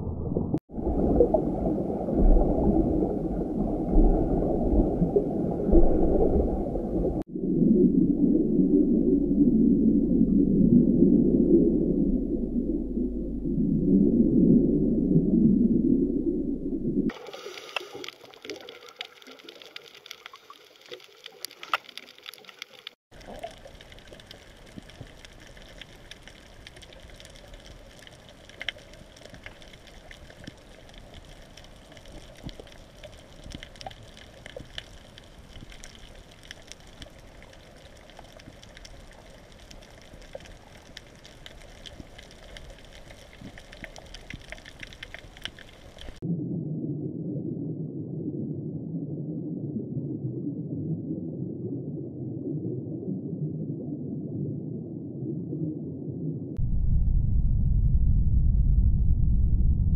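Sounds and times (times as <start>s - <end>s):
underwater hiss: 17.1s - 18.8s
small clicks and crackles: 17.1s - 46.2s.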